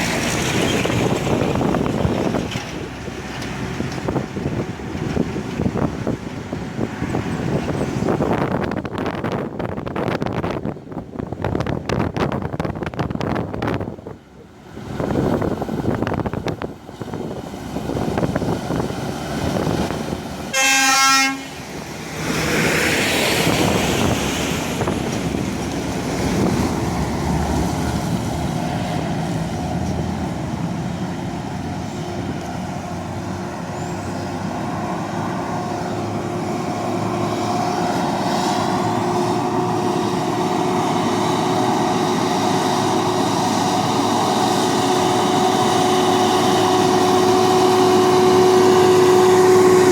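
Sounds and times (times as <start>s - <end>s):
truck engine running: 0.0s - 49.9s
truck horn blast: 20.5s - 21.6s, 44.9s - 49.9s.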